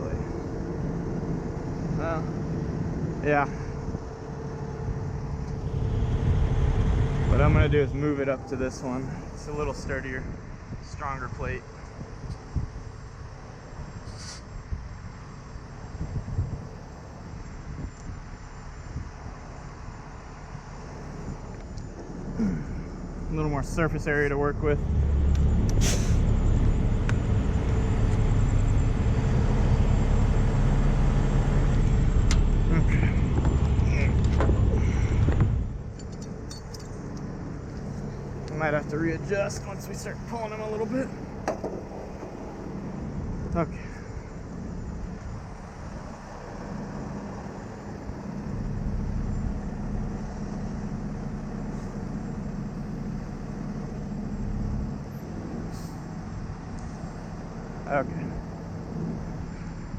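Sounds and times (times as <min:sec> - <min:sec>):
truck engine idling: 0:00.0 - 0:14.4, 0:16.6 - 0:59.9.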